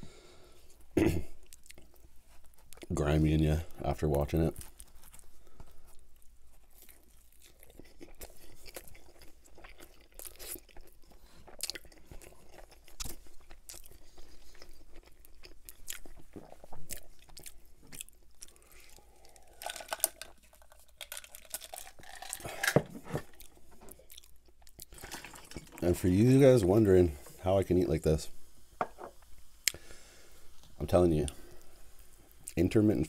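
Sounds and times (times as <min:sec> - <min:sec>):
crunching pizza crust: 0:01.6 - 0:26.9.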